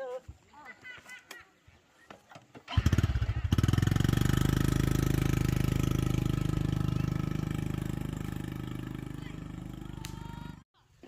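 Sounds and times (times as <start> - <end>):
small engine running: 2.7 - 10.6.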